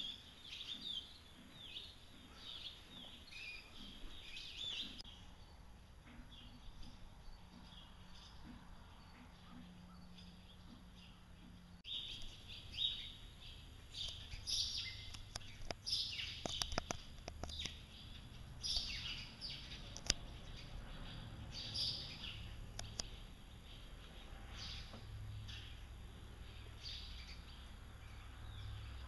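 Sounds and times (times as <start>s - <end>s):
small birds chirping: 0.0s - 29.0s
sharp clicks: 15.0s - 17.8s, 19.9s - 20.2s, 22.7s - 23.2s.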